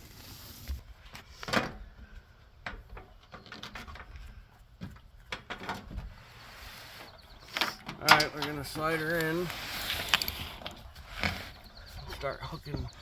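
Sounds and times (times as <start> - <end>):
light knocks and clunks: 1.4 - 6.2.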